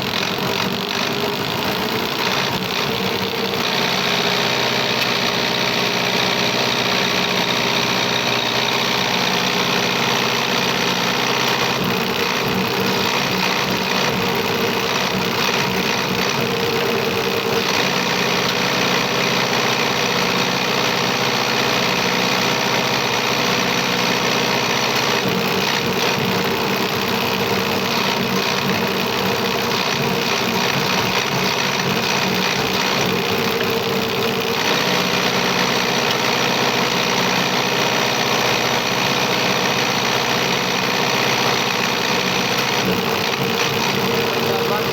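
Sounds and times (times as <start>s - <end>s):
diesel injection pump running: 0.0s - 44.9s.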